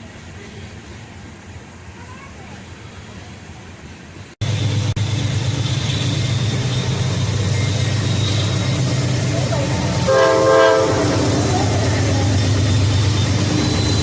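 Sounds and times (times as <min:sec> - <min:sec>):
diesel locomotive engine rumbling: 0:00.0 - 0:14.0
locomotive air horn: 0:09.9 - 0:11.6.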